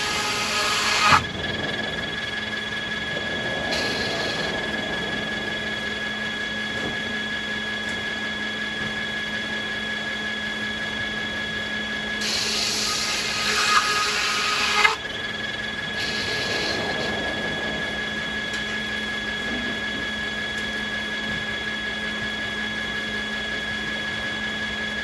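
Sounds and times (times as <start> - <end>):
saw cutting through wood: 0.0 - 1.3, 12.2 - 15.0, 15.9 - 17.1
sawmill machinery humming: 0.0 - 25.0.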